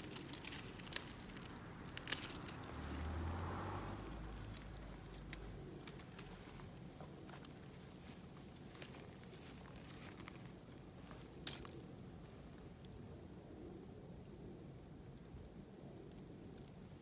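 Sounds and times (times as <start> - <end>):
wood fire crackling and popping: 0.0 - 3.6.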